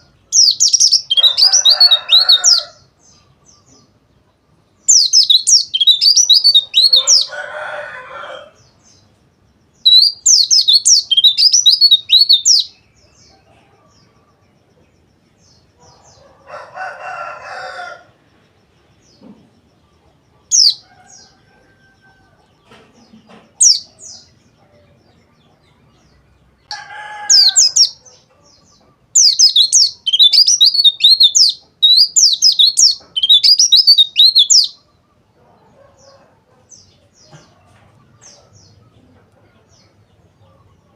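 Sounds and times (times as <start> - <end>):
bird warbling song: 0.0 - 4.0, 4.7 - 7.4, 9.8 - 16.4, 19.0 - 40.9
bird chirping: 0.0 - 40.9.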